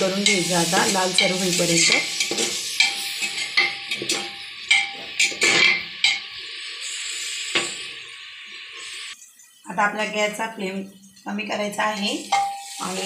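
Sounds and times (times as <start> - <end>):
onions sizzling in oil: 0.0 - 13.0
metal spoon scraping pot: 1.1 - 6.2.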